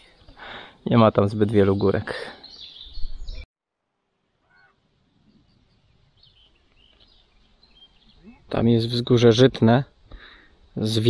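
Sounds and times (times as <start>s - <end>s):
bird chirps: 1.5s - 3.5s, 4.4s - 9.0s.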